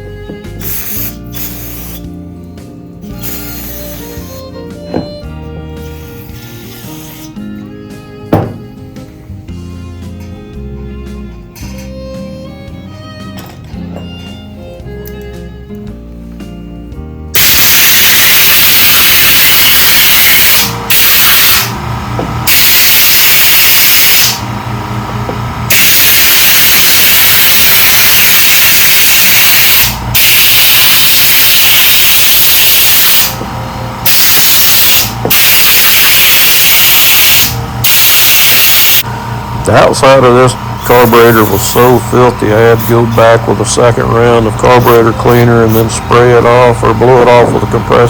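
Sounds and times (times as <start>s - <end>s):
compressed air blow gun hissing: 0.6s - 2.2s, 3.0s - 4.5s, 5.8s - 7.4s.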